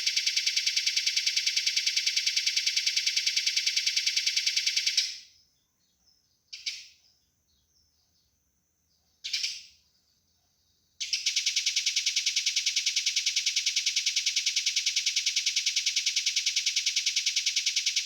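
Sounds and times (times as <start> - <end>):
sparrows chirping rapidly: 4.0 - 11.5.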